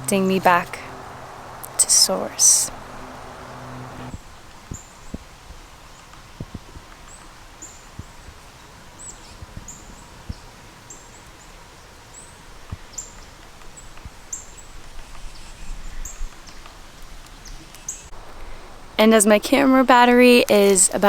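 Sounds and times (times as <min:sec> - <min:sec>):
bird chirping: 0:00.0 - 0:05.2.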